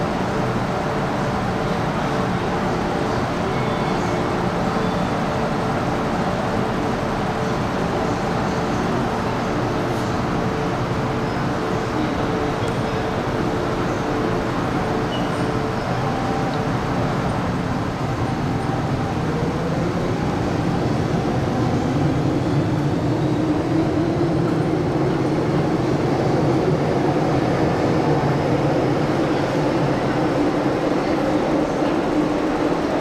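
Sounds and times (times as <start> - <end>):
train wheel and rail noise: 0.0 - 33.0.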